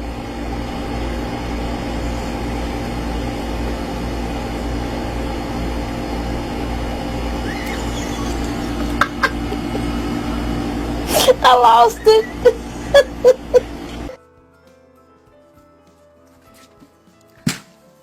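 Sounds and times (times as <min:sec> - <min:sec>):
motor humming and rumbling: 0:00.0 - 0:14.2
short rising squeak: 0:07.4 - 0:08.8.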